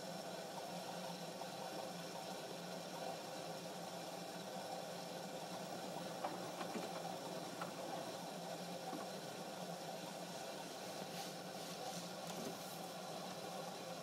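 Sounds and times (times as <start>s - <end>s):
washing machine humming: 0.0s - 14.0s
faint clicks: 6.2s - 8.2s.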